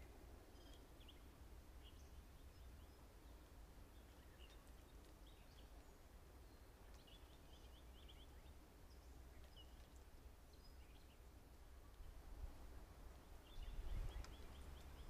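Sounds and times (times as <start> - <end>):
faint bird chirps: 13.3 - 15.0.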